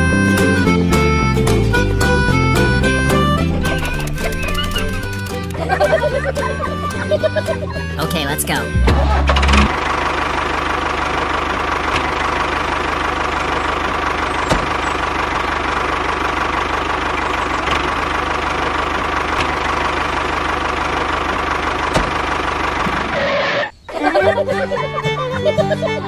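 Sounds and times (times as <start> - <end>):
sharp clicks: 3.7 - 5.6.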